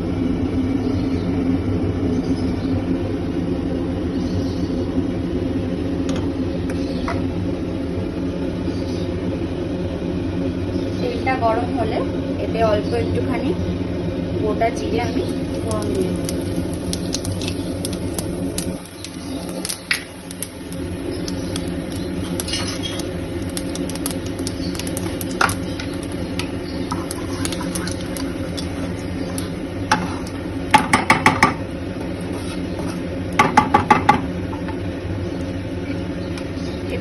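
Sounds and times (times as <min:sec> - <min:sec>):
seeds crackling in hot oil: 0:10.7 - 0:37.0.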